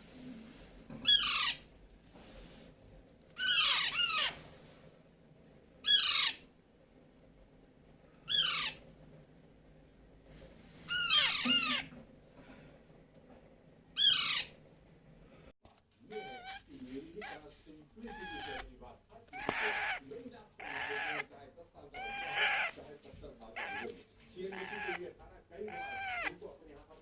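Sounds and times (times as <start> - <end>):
parakeet calling loudly: 1.0 - 1.7, 3.4 - 4.4, 5.8 - 6.5, 8.2 - 8.8, 10.9 - 11.9, 14.0 - 14.6, 16.1 - 16.6, 18.0 - 18.7, 19.3 - 21.3, 21.9 - 22.8, 23.5 - 25.0, 25.6 - 26.4.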